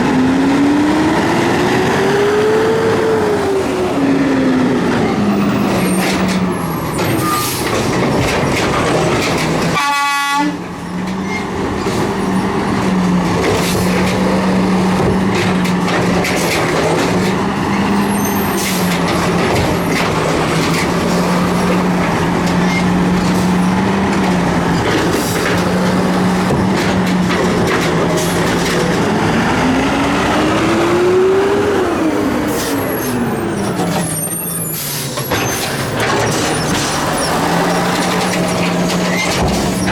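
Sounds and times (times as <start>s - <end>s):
garbage truck engine running: 0.0s - 9.8s, 10.6s - 39.9s
clanks and knocks: 5.6s - 9.8s, 10.6s - 29.1s, 35.2s - 39.9s.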